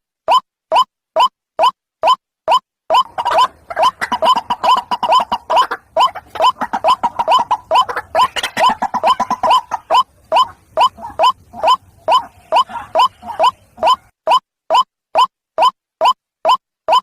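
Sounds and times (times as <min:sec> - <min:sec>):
bird calling rising notes: 0:02.9 - 0:14.1.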